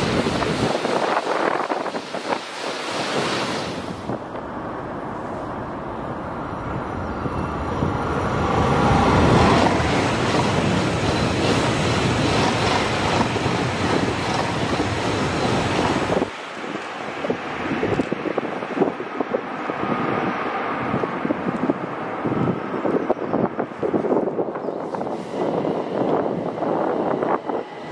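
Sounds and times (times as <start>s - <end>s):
high-speed train passing: 0.0s - 27.9s
wind buffeting microphone: 0.0s - 27.9s.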